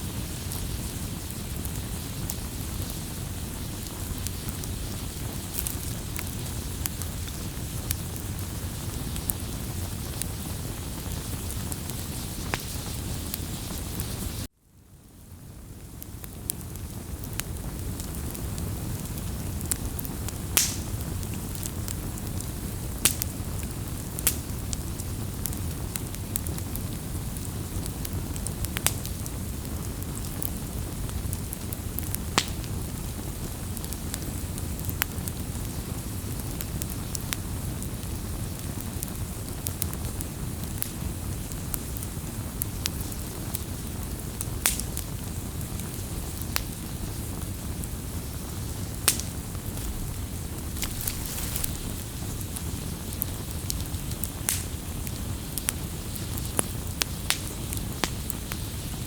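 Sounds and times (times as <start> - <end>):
sharp pops from fire: 0.0 - 14.5, 15.8 - 59.0
wood fire crackling: 0.0 - 59.0.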